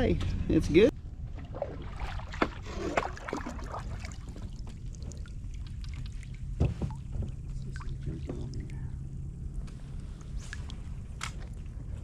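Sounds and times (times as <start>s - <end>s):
steady low rumble: 0.0s - 12.0s
water splashing against kayak: 1.3s - 8.8s
water drips: 3.2s - 9.1s.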